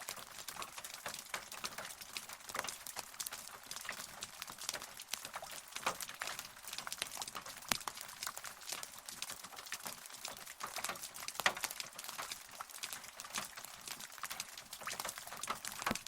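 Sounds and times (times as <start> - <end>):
rain drops pattering: 0.0 - 16.0.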